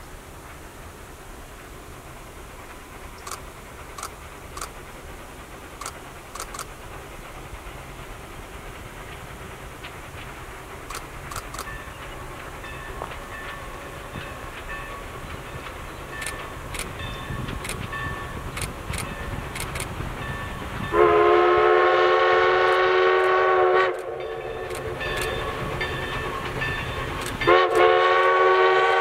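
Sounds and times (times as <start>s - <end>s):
train rumble: 0.0s - 29.0s
sharp ticks: 3.2s - 4.8s, 5.8s - 6.8s, 9.2s - 13.7s, 14.5s - 17.9s, 18.5s - 20.0s, 23.9s - 25.4s, 26.2s - 27.8s.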